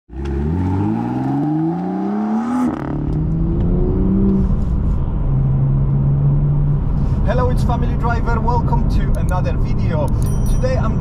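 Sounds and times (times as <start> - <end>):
car engine accelerating: 0.1 - 7.2.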